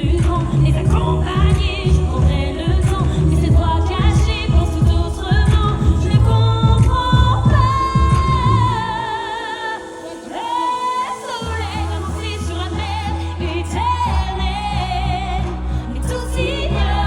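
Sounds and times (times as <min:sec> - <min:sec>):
steady beat: 0:00.0 - 0:08.8
deep bass line: 0:00.0 - 0:09.0, 0:11.4 - 0:17.0
backing music: 0:00.0 - 0:17.0
person singing with vibrato: 0:00.0 - 0:17.0.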